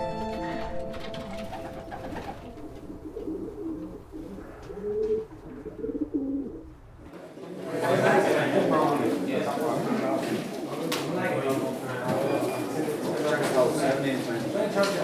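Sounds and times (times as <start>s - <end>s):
music cue: 0.0s - 4.0s
pigeons cooing: 0.6s - 7.8s.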